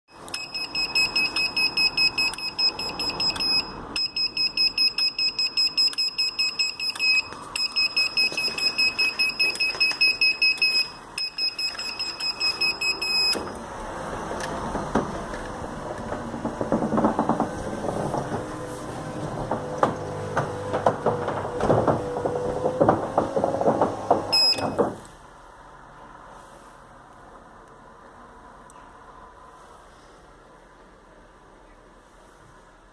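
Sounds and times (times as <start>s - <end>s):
garage door opener beeping: 0.2s - 25.0s.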